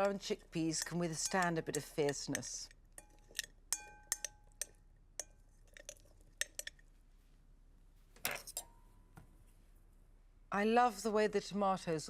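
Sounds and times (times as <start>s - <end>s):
spoon clinking against a dish: 0.0s - 6.8s.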